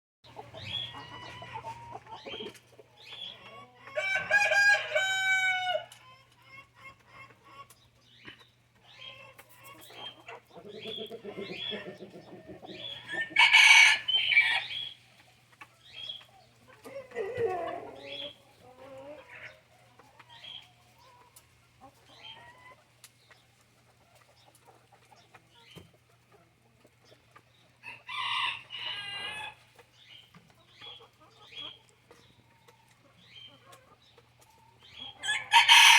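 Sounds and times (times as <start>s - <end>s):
chickens clucking: 0.2s - 35.9s
rooster crowing: 4.0s - 5.9s, 13.0s - 14.8s, 35.2s - 35.9s.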